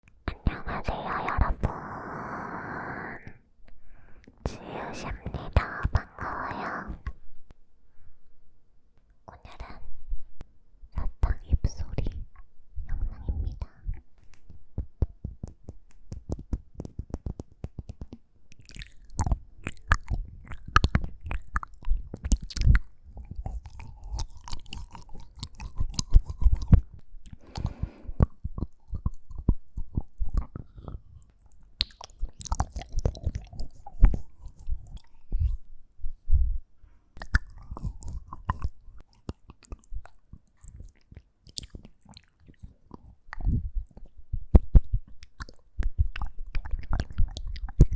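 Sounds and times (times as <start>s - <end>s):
lip and tongue clicks: 16.2s - 35.7s, 37.2s - 47.9s.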